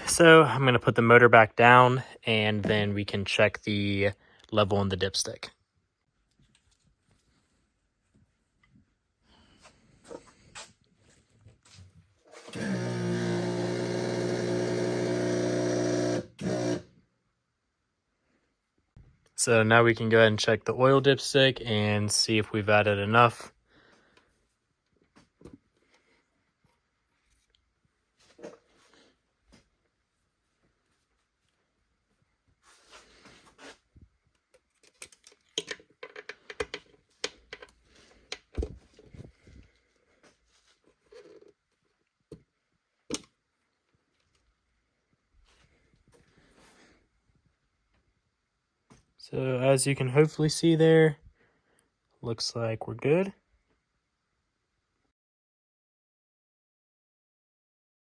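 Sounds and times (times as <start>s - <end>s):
electric trim motor humming: 12.6s - 16.9s.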